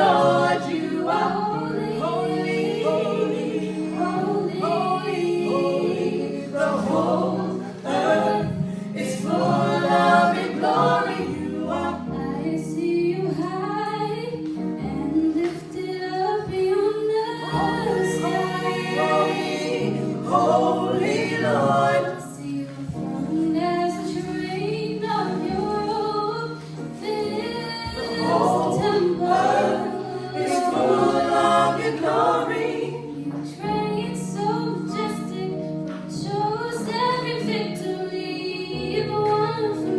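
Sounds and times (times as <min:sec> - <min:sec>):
gospel choir singing: 0:00.0 - 0:39.9.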